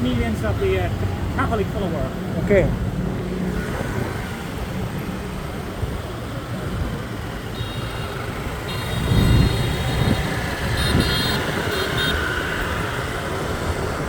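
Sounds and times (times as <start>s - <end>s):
traffic engines rumbling: 0.0s - 14.0s
wind: 0.0s - 14.0s.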